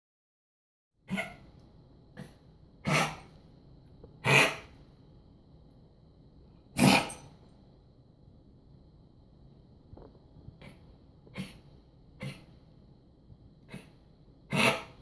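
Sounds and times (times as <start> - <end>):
dog coughing: 1.1 - 1.4, 2.2 - 3.3, 4.2 - 4.7, 6.8 - 7.3, 10.6 - 12.6, 13.7 - 15.0.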